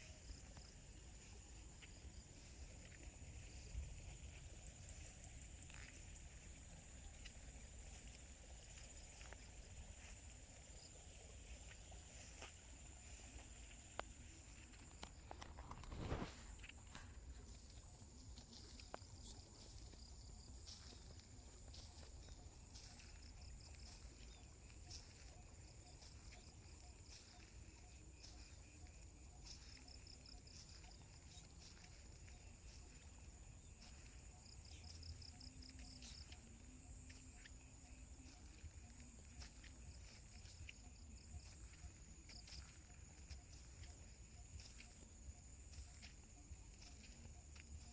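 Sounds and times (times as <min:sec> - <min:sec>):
insect drone: 0:00.0 - 0:47.9
soft footsteps: 0:00.0 - 0:47.9
faint ticks: 0:11.6 - 0:19.9.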